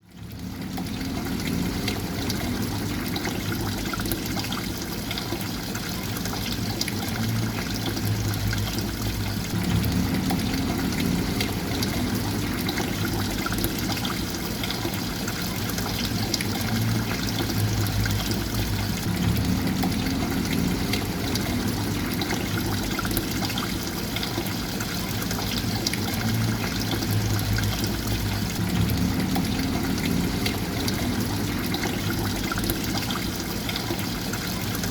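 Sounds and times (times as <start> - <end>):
water flowing and trickling: 0.0 - 34.9
low rumble: 7.3 - 14.3, 16.6 - 23.8, 26.0 - 33.1.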